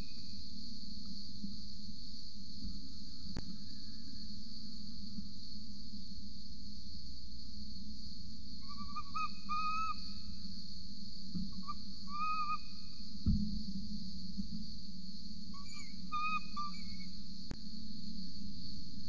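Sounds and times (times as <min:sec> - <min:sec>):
high insect chirring: 0:00.0 - 0:19.0
soft thump: 0:13.2 - 0:13.7
bird whistled notes: 0:15.6 - 0:17.1.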